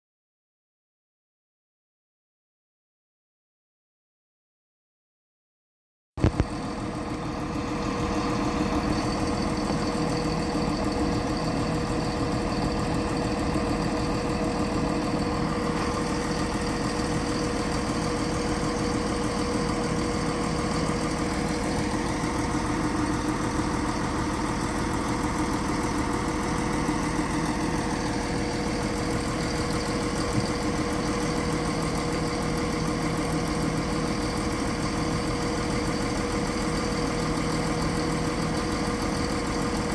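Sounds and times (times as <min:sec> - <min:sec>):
clicks: 0:06.2 - 0:06.6
train diesel engine idling: 0:13.2 - 0:31.2.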